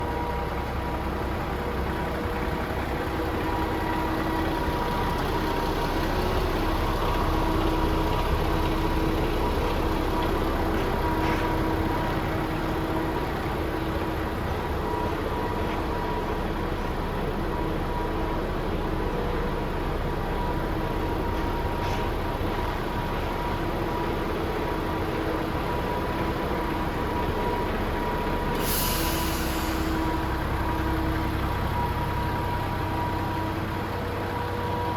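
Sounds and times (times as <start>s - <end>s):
diesel engine idling: 0.0s - 34.9s
short hiss: 28.5s - 30.0s.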